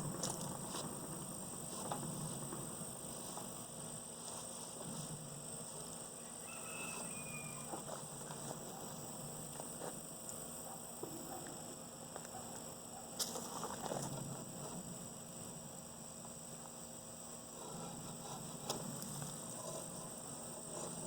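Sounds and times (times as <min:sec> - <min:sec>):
honeybees humming: 0:00.0 - 0:12.9.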